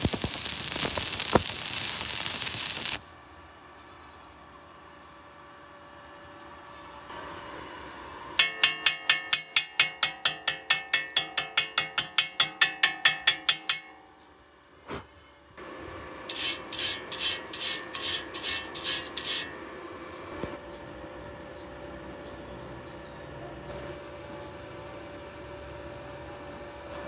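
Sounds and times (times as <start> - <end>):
rhythmic rasping strokes: 0.0 - 3.1, 8.4 - 14.0, 16.3 - 19.5.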